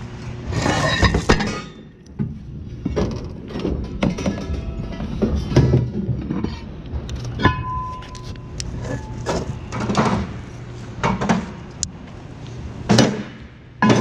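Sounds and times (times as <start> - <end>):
low steady hum: 0.0 - 14.0
metal rotors clanking into container: 0.5 - 2.0, 2.8 - 10.4.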